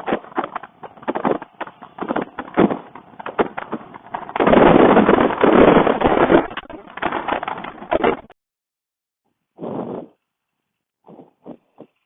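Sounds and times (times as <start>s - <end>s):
gusty wind thumps: 0.0s - 8.3s
wind blasting microphone: 0.0s - 8.3s.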